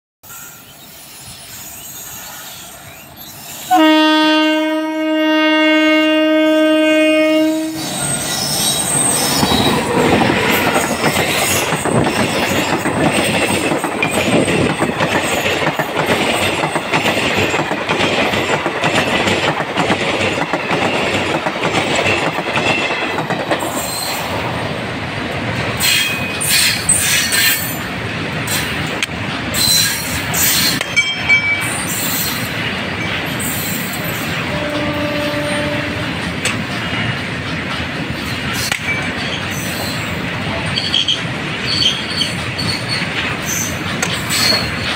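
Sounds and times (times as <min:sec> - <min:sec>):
locomotive horn blast: 0:03.7 - 0:08.0, 0:34.4 - 0:36.2
metal clanks and squeals: 0:07.8 - 0:09.9, 0:25.8 - 0:27.8, 0:40.7 - 0:44.9
train wheels clattering over rail joints: 0:07.8 - 0:24.4, 0:36.1 - 0:44.9.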